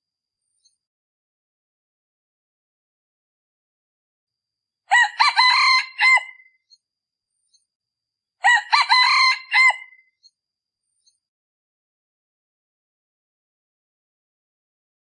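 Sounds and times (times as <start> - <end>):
rooster crowing: 4.9 - 6.5, 8.4 - 10.0.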